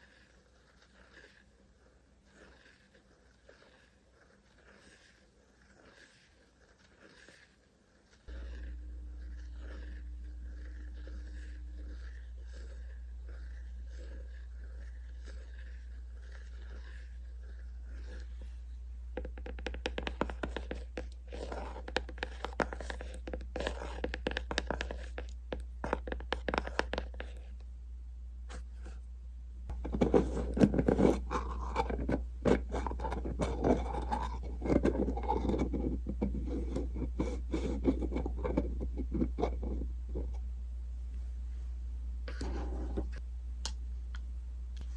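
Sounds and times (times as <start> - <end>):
scraping and crackly rubbing: 0.0 - 27.6, 29.7 - 40.4.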